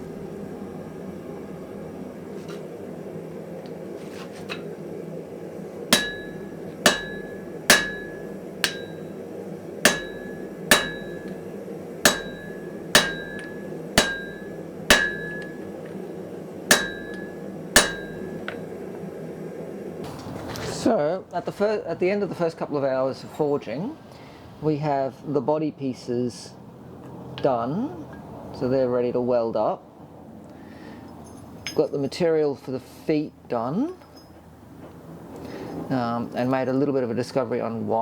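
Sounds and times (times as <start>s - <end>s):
steady low hum: 0.0s - 20.0s
hammer blows on an anvil: 5.9s - 9.2s, 9.8s - 15.9s, 16.7s - 18.6s.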